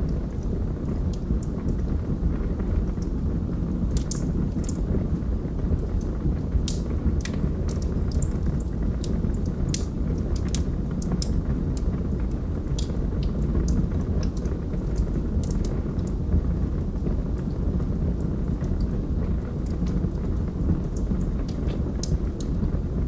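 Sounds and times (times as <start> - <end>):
log fire flames rumbling: 0.0 - 23.0
wood crackling and popping: 0.0 - 23.0.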